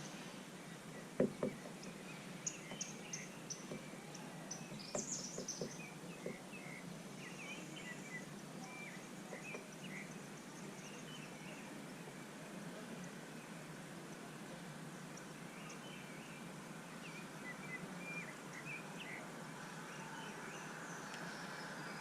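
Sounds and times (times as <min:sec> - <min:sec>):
small birds chirping: 0:00.0 - 0:22.0
sharp knocks: 0:01.2 - 0:02.0, 0:03.6 - 0:04.0, 0:04.6 - 0:06.4.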